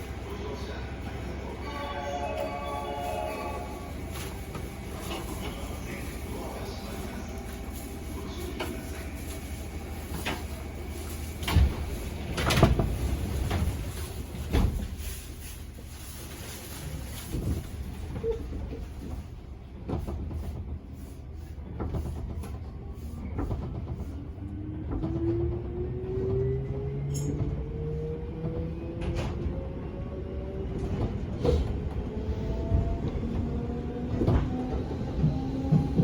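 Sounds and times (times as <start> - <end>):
train rumble: 0.0 - 36.0.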